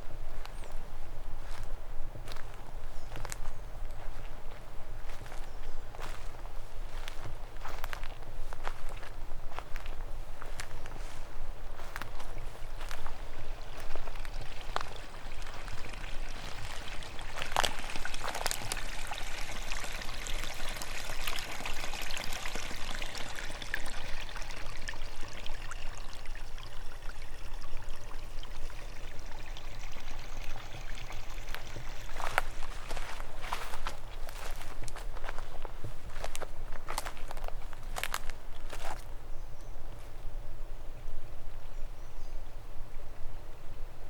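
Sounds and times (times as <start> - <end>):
stream rushing: 11.8 - 35.4.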